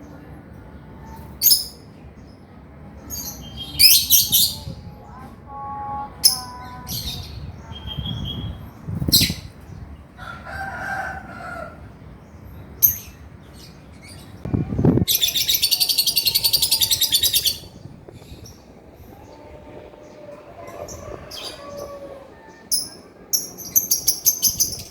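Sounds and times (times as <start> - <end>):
lovebird chirping and trilling: 15.0 - 18.7, 22.6 - 24.9.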